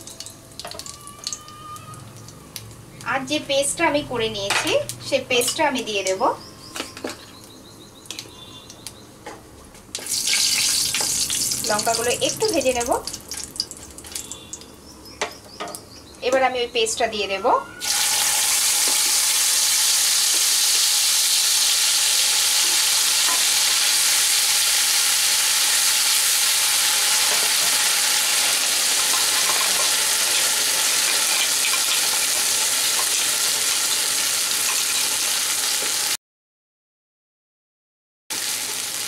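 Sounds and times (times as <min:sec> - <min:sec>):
paste sizzling in hot oil: 0:10.0 - 0:12.0, 0:17.8 - 0:36.2, 0:38.3 - 0:39.0.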